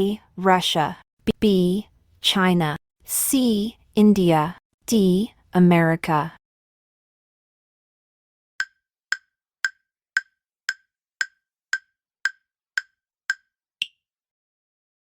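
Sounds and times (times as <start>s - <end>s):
clock-like timer ticks: 8.6s - 14.0s.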